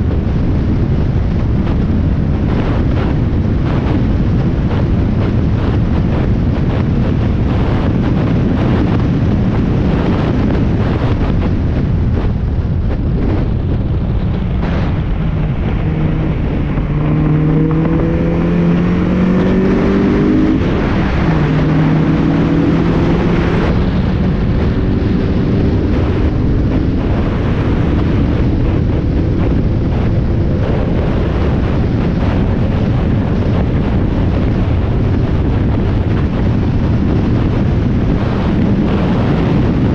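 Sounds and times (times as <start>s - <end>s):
race car engine at full throttle: 0.0s - 39.9s
wind noise: 0.0s - 39.9s.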